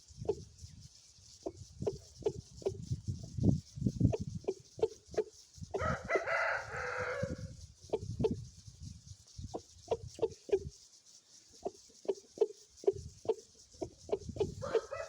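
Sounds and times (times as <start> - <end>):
chicken clucking: 4.1 - 7.3, 7.9 - 8.4, 9.5 - 10.7, 11.5 - 15.0
rooster crowing: 5.8 - 7.6, 14.4 - 15.0.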